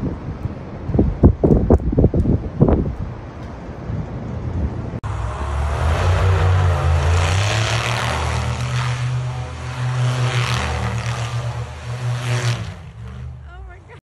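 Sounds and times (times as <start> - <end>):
vehicle engine humming: 3.3 - 14.0
hissing rush of road noise: 3.6 - 14.0.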